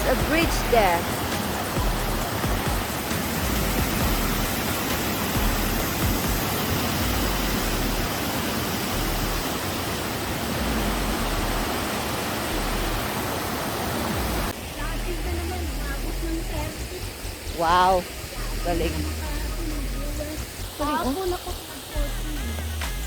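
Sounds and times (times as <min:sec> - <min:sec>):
river rushing over rocks: 0:00.0 - 0:15.7.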